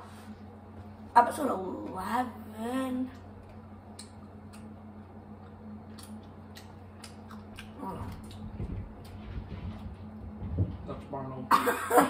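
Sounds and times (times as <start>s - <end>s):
low electrical hum: 0.0s - 12.0s
people chewing food: 3.1s - 10.6s
low mumble: 7.7s - 8.7s.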